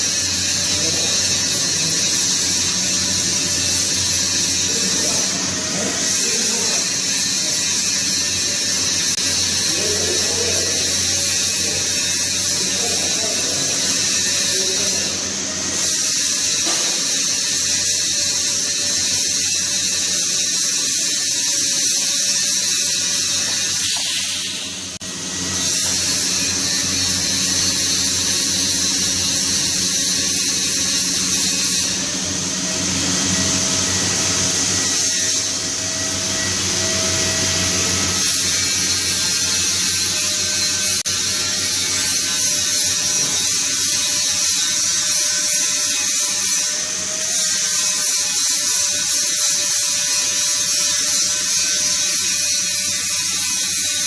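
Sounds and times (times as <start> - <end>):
buzzing hiss of welding equipment: 0.0 - 32.1.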